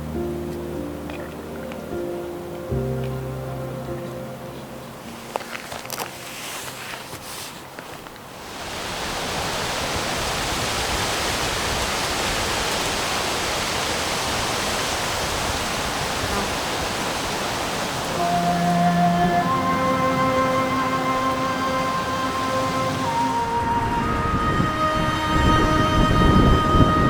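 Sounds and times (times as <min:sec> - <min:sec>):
music: 0:00.0 - 0:07.2, 0:18.1 - 0:27.0
wind rushing through trees: 0:00.0 - 0:27.0.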